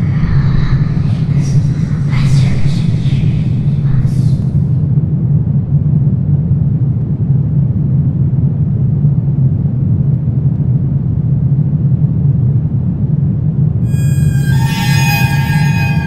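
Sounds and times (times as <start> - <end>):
low rumbling drone: 0.0 - 4.8, 13.8 - 16.0.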